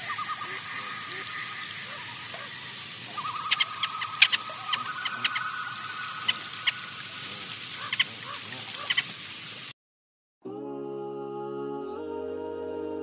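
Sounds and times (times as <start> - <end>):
wavering background tone: 0.0 - 8.3
birds chirping: 0.0 - 9.7.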